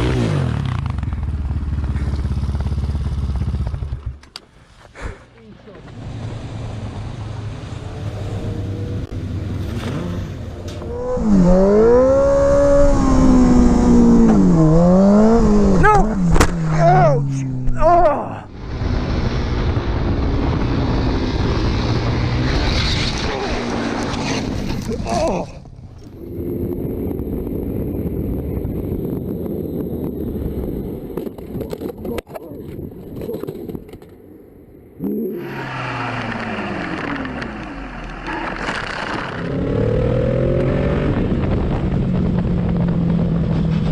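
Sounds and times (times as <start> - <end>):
road noise: 0.0 - 43.9
wind: 0.0 - 43.9
vehicle engine accelerating: 5.9 - 17.8, 35.0 - 43.9
knocks and scrapes: 36.1 - 39.5.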